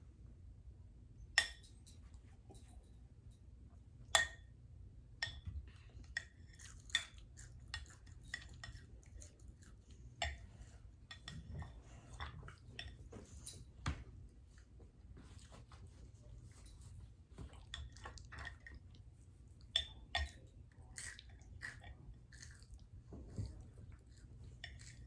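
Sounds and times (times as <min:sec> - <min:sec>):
quiet chewing: 0:05.6 - 0:13.7, 0:14.3 - 0:25.0.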